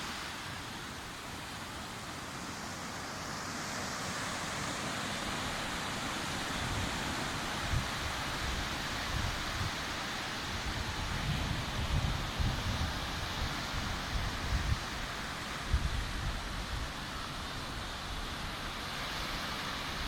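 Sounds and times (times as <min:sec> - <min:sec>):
sea surf washing in: 0:00.0 - 0:20.0
wind buffeting microphone: 0:10.6 - 0:13.2.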